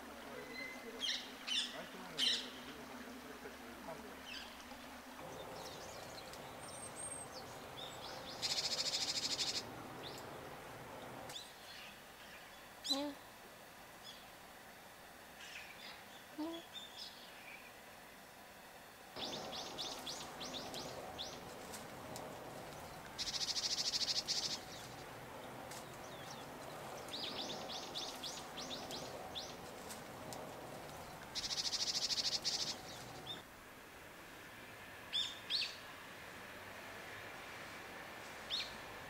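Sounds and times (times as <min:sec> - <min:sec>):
faint steady background hiss: 0:00.0 - 0:39.0
songbirds high chirps: 0:04.2 - 0:13.2, 0:19.2 - 0:33.5
fast buzzing bird trill: 0:23.2 - 0:25.0, 0:31.0 - 0:33.3.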